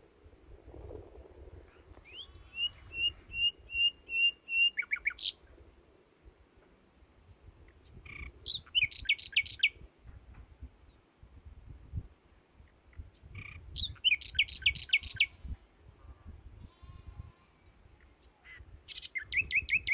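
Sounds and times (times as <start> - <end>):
songbird singing: 1.6 - 5.6, 7.5 - 11.1, 12.6 - 15.6, 16.6 - 19.9.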